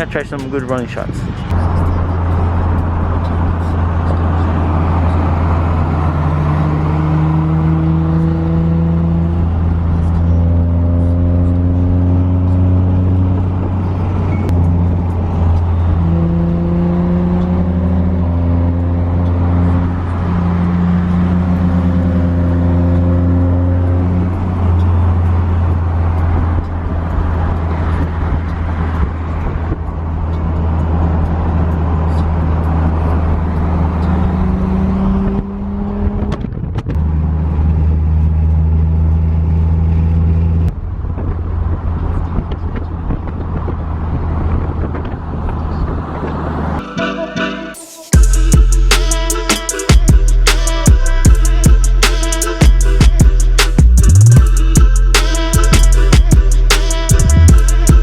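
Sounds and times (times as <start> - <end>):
car engine and road drone: 0.0 - 58.0.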